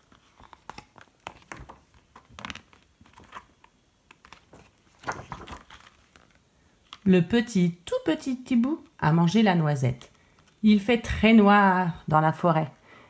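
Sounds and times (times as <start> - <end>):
book pages rustling: 0.0 - 7.1, 10.0 - 10.8.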